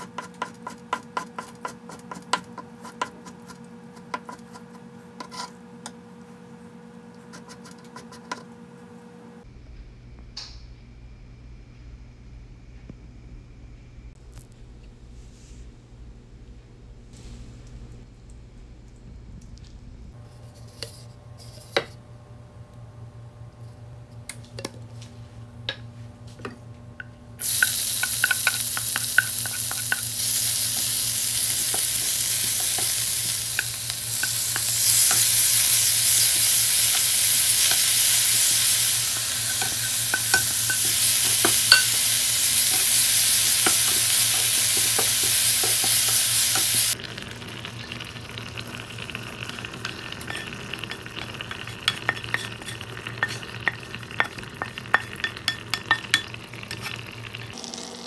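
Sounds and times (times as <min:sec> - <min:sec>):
steady low hum: 0:09.3 - 0:47.0
food sizzling in hot oil: 0:27.4 - 0:58.0
wooden spatula scraping a pan: 0:50.0 - 0:55.4.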